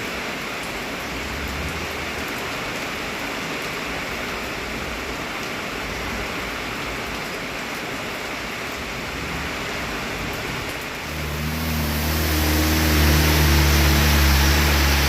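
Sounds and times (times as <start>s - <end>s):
heavy rain: 0.0s - 15.0s
tyres hissing on wet road: 8.4s - 15.0s
vehicle engine hum: 11.0s - 15.0s.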